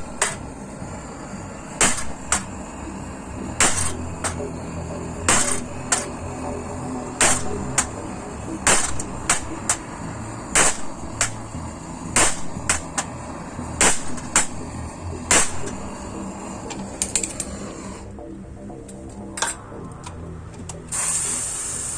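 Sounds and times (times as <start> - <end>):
hammer striking metal grate: 0.0 - 0.4, 1.8 - 2.5, 3.6 - 4.4, 5.2 - 6.2, 7.2 - 8.0, 8.6 - 9.9, 10.5 - 11.6, 12.2 - 13.1, 13.8 - 14.6, 15.3 - 15.8.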